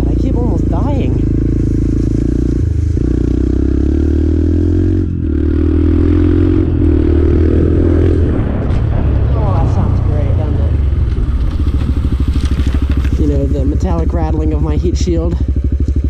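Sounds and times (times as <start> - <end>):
dirt bike engine running: 0.0 - 16.0
exhaust heat shield rattling: 6.6 - 16.0.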